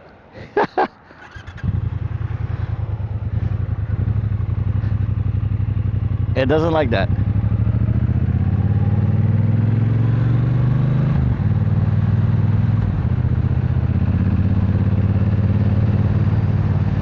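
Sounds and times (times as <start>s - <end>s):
motorcycle engine accelerating: 1.2s - 17.0s.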